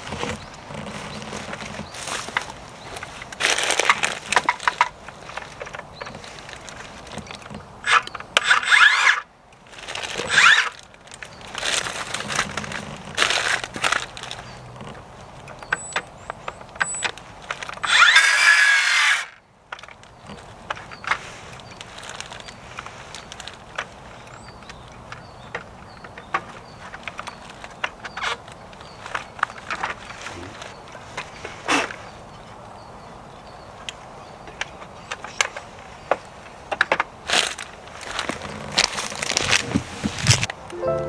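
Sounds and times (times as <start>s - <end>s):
wood scraping and squeaking: 0.0s - 9.2s, 9.9s - 15.8s, 38.0s - 40.5s.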